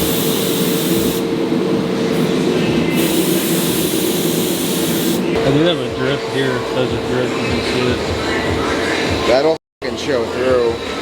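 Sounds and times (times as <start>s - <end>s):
paint spray gun hissing: 0.0s - 1.3s, 2.9s - 5.3s
steady machine hum: 0.0s - 11.0s.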